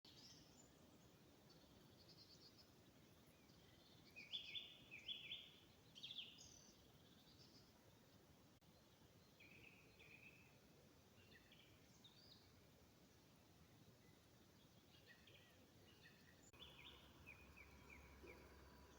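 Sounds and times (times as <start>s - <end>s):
faint outdoor background noise: 0.0s - 18.9s
songbirds chirping: 0.0s - 18.9s
bird trill: 15.9s - 18.9s.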